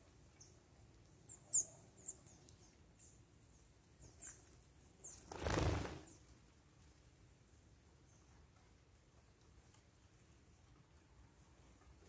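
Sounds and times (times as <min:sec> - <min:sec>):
small birds chirping: 0:00.0 - 0:06.3.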